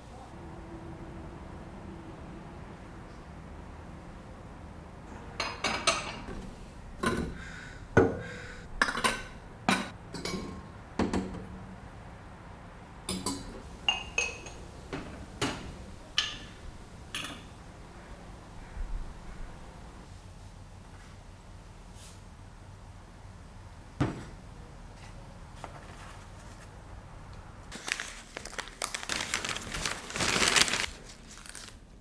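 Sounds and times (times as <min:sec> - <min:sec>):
dishes clinking: 0:05.2 - 0:07.4, 0:08.0 - 0:11.5, 0:13.1 - 0:17.6.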